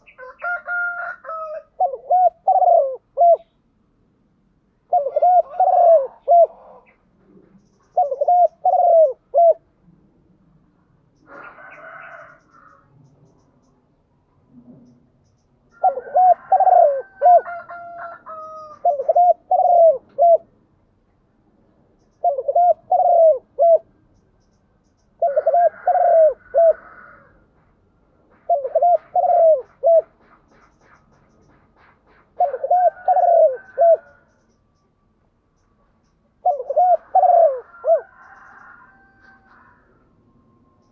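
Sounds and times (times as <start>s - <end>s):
dove cooing: 0.0s - 3.6s, 4.8s - 9.7s, 15.7s - 20.5s, 22.2s - 23.9s, 25.2s - 27.4s, 28.3s - 34.4s, 36.4s - 39.9s.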